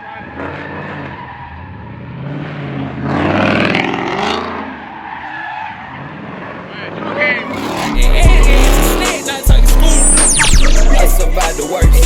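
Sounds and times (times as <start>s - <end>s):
car engine revving: 6.1s - 12.0s.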